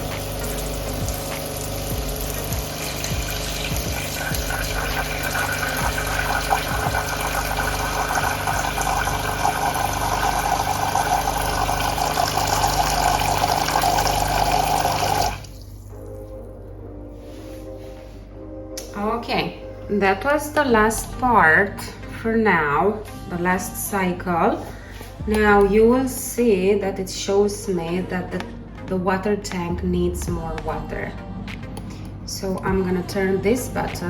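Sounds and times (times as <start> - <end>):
espresso machine pump buzzing: 0.0 - 15.5
water pouring into a pot: 0.0 - 16.2.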